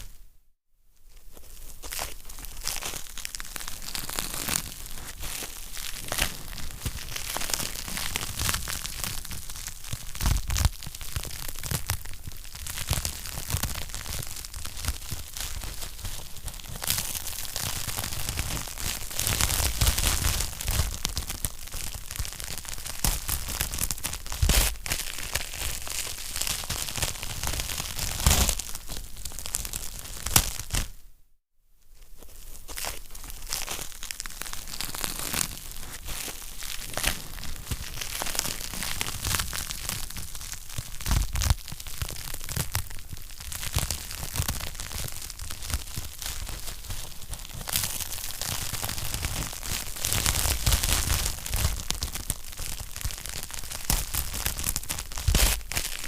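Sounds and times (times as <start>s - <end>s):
wood fire crackling: 33.5s - 56.0s.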